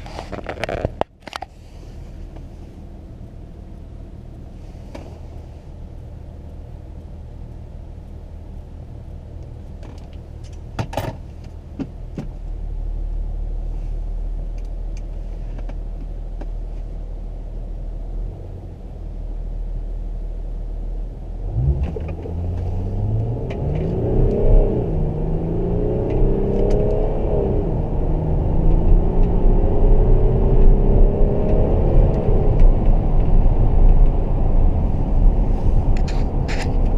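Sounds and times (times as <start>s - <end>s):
diesel engine idling and accelerating: 0.0s - 36.9s.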